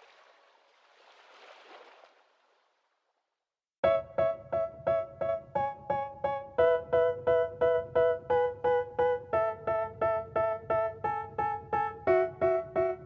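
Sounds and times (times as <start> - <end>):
piano repeating chords: 3.8 - 13.0.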